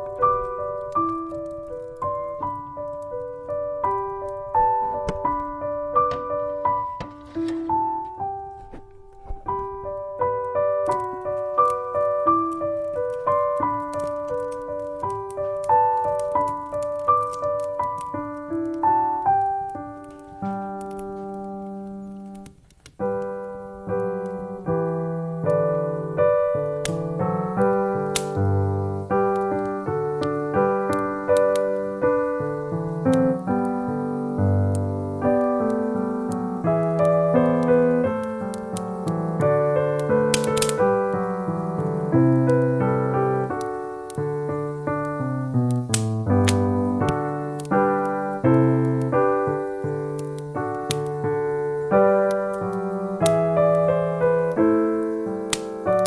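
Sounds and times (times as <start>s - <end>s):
piano music: 0.0s - 56.0s
sharp click: 40.0s - 40.8s, 45.7s - 47.8s, 55.5s - 56.0s.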